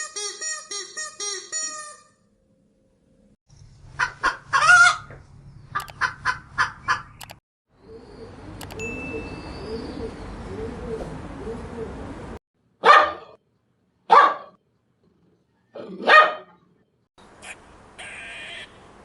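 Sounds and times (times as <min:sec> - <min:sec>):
dog barking: 0:12.8 - 0:13.4, 0:14.1 - 0:14.6, 0:16.0 - 0:16.6.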